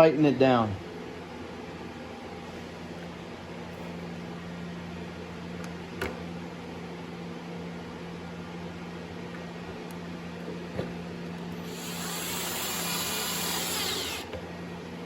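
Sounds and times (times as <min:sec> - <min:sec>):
electric motor hum: 0:11.6 - 0:14.4.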